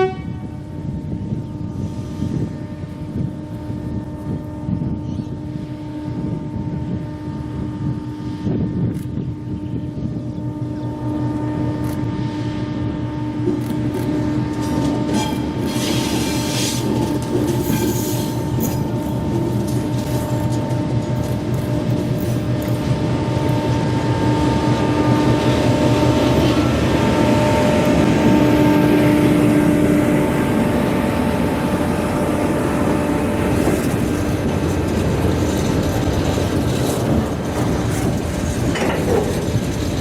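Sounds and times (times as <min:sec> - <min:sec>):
train engine: 0:00.0 - 0:40.0
wheels on track: 0:13.4 - 0:40.0.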